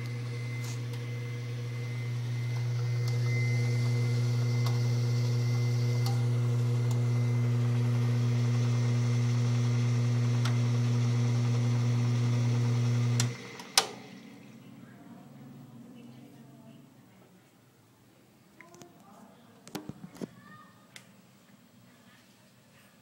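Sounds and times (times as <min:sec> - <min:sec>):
pump motor humming: 0:00.0 - 0:14.5.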